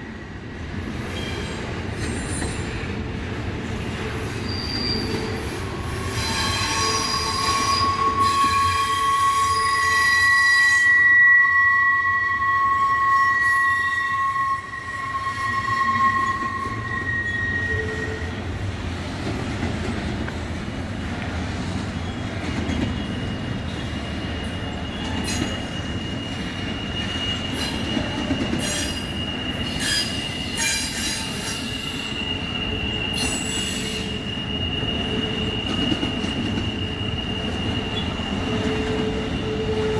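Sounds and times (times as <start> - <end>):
train wheels rumbling on rails: 0.0 - 39.9
wheel flanges squealing: 22.9 - 39.9.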